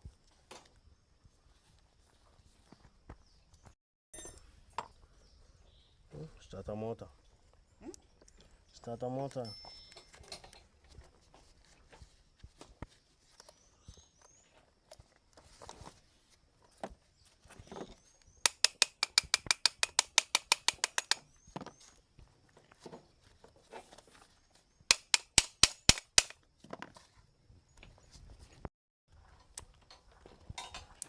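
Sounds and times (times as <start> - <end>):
rapid ratchet clicks: 18.5 - 21.2, 24.9 - 26.4.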